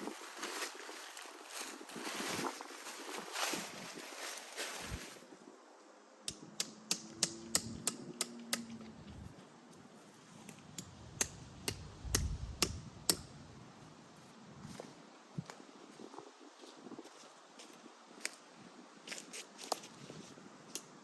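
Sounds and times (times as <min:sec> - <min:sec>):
faint rustling: 0:00.0 - 0:05.4.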